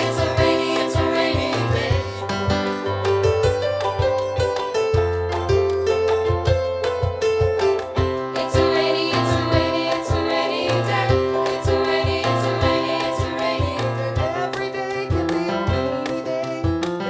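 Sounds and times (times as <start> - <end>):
sung vocals: 0.0 - 2.8, 8.4 - 17.0
bass line: 0.0 - 16.8
live band playing: 0.0 - 17.0
steady drum beat: 0.0 - 17.0.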